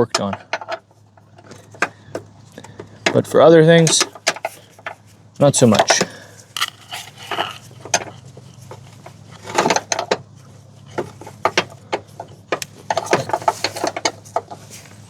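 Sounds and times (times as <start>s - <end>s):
hand tools clinking on metal: 2.6s - 8.8s.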